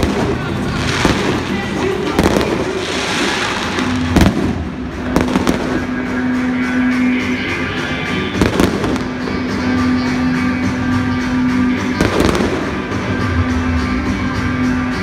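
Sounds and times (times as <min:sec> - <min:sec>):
fireworks bursting with sharp bangs: 0:00.0 - 0:07.0, 0:08.3 - 0:10.0, 0:11.4 - 0:13.6
din of fireworks show: 0:00.0 - 0:15.0.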